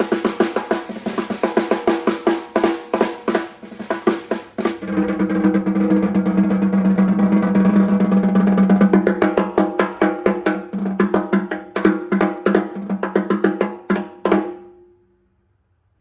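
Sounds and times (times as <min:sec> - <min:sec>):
snare drum roll: 0:00.0 - 0:14.6.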